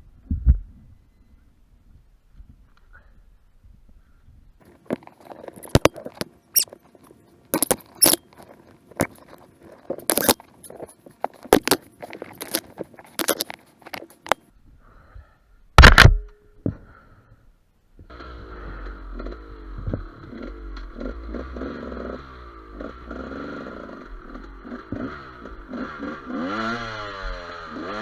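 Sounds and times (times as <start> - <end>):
sharp clicks and squeaks: 4.6 - 14.5.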